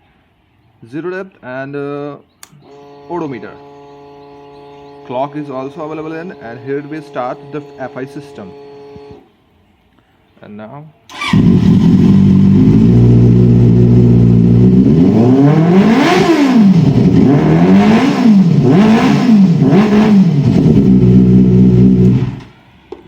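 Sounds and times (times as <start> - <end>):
motorcycle engine idling and revving: 11.1 - 22.5.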